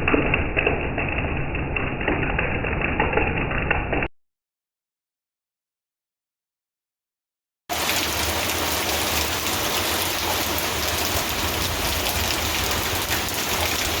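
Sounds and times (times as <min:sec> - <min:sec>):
rain falling: 0:00.0 - 0:04.1, 0:07.7 - 0:14.0.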